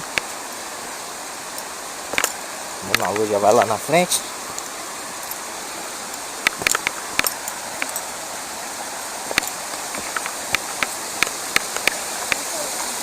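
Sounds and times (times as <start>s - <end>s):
sharp irregular clicks and taps: 0.0s - 0.3s, 2.9s - 3.7s, 6.4s - 8.0s, 9.3s - 12.4s
creek water rushing: 0.0s - 13.0s.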